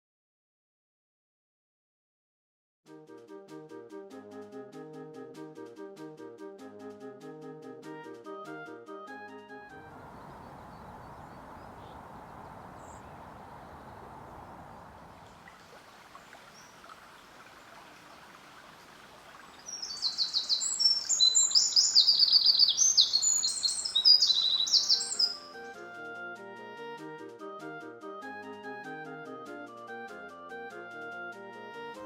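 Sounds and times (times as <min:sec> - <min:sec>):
outdoor background hiss: 0:09.7 - 0:28.0
songbird twittering: 0:09.8 - 0:18.3, 0:19.3 - 0:25.5.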